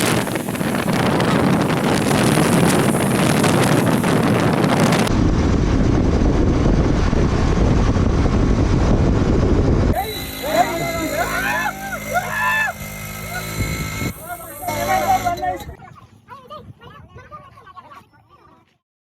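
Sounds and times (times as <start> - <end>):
deep dull rumble: 0.0 - 11.0
wind rushing on microphone: 0.0 - 11.4, 12.7 - 17.8.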